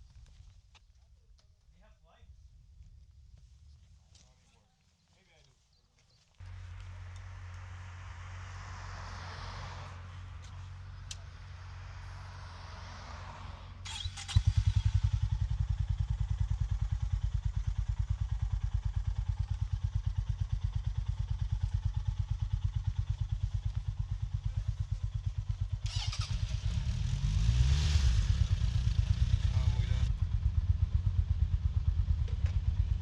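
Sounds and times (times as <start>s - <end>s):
motorcycle engine idling: 6.4s - 9.2s, 13.9s - 27.2s, 28.2s - 33.0s
engine clatter: 13.8s - 33.0s.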